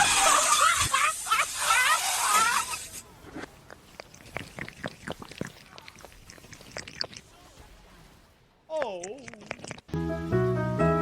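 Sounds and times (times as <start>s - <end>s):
pet chewing crunchily: 3.4s - 7.4s, 8.8s - 10.0s.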